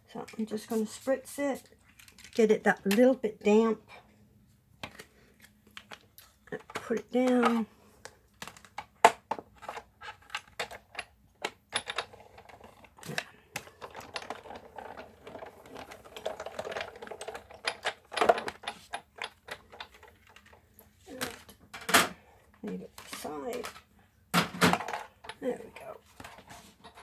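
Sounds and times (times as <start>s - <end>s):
hand-cranked machine clicking and grinding: 11.7s - 20.5s.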